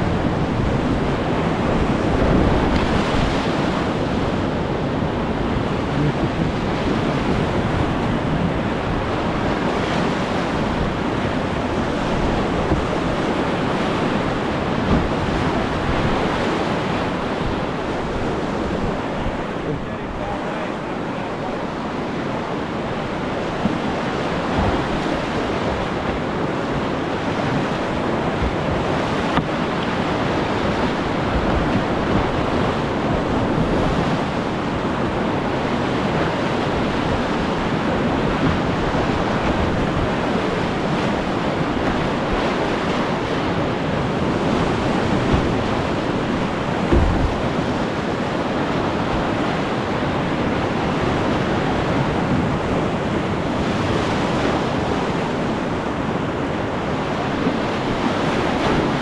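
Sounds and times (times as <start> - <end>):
whitewater rushing: 0.0 - 59.0
wind buffeting microphone: 0.0 - 59.0
low thump: 46.8 - 47.4.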